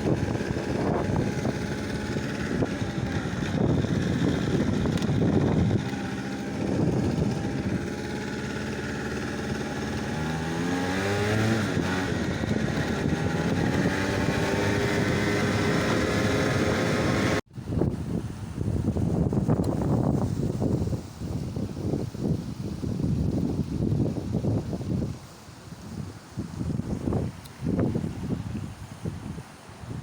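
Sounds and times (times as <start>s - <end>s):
engine running: 0.0s - 17.4s.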